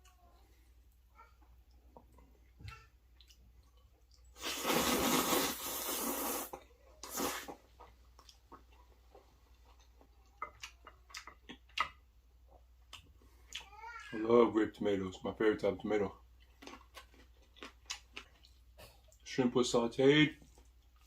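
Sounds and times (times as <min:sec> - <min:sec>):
person slurping: 0:04.4 - 0:07.9
chewing mouth clicks: 0:07.0 - 0:12.0, 0:16.4 - 0:19.2.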